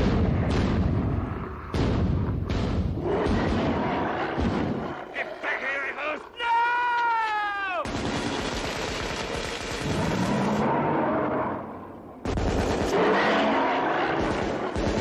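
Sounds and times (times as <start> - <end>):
rapid rifle fire: 7.8 - 10.6, 12.2 - 13.4, 14.0 - 15.0.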